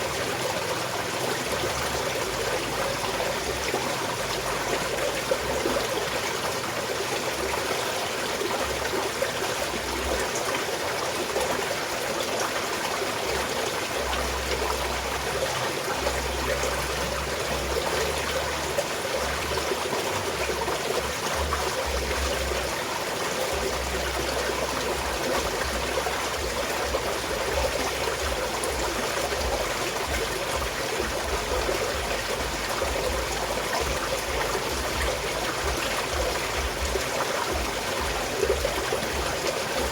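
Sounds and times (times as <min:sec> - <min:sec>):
stream flowing and trickling: 0:00.0 - 0:39.9.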